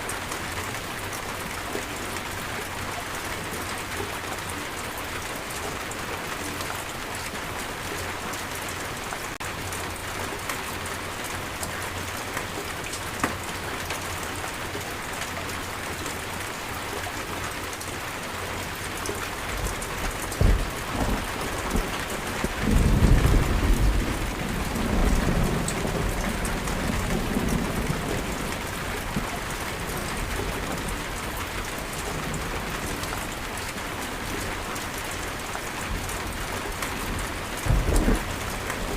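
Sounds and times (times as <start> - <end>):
heavy rain falling: 0.0 - 38.9
thunderclap with rolling rumble: 19.3 - 33.6, 35.8 - 38.9.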